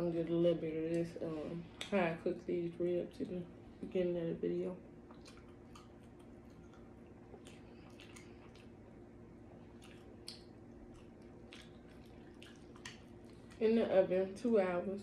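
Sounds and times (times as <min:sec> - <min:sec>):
wet chewing and lip-smacking: 0:05.0 - 0:13.7.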